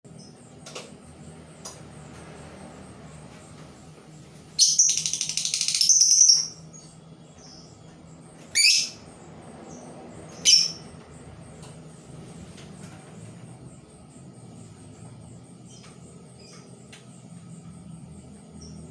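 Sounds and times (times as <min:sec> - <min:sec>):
songbird trilling: 0:04.6 - 0:07.8, 0:08.5 - 0:10.9.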